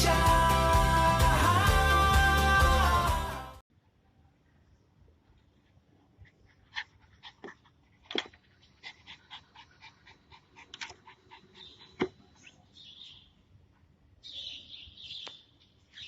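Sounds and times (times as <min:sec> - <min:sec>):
dog panting: 0:06.0 - 0:12.8.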